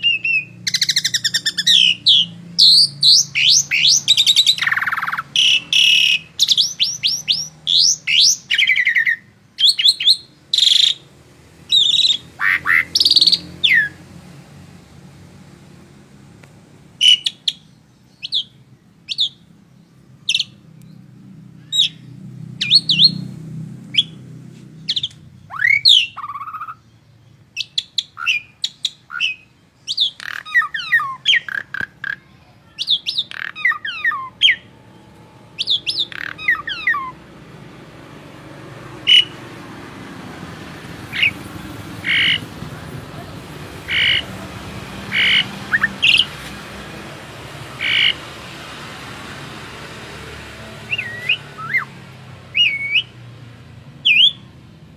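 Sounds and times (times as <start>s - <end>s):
songbird chirping and whistling: 0.0s - 14.0s, 17.0s - 21.0s, 21.6s - 23.3s, 23.9s - 26.9s, 27.6s - 34.7s, 35.5s - 37.2s, 39.0s - 39.4s, 41.1s - 41.4s, 42.0s - 42.4s, 43.9s - 44.2s, 45.1s - 46.3s, 47.8s - 48.2s, 50.9s - 51.9s, 52.5s - 53.2s, 54.0s - 54.5s.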